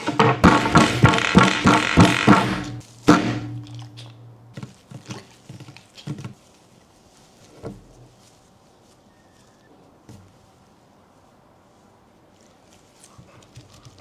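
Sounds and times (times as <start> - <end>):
music with percussive hits: 0.0 - 3.7.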